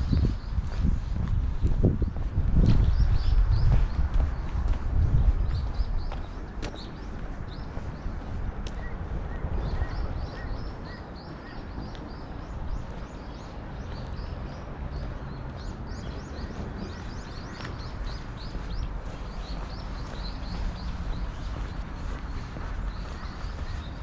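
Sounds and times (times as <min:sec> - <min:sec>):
steady low rumble: 0:00.0 - 0:24.0
small birds chirping: 0:01.8 - 0:24.0.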